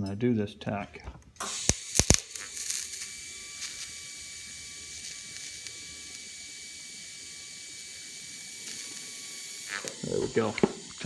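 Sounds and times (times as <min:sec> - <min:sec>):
steady hiss: 0:01.4 - 0:11.0
welding crackle: 0:01.4 - 0:11.0.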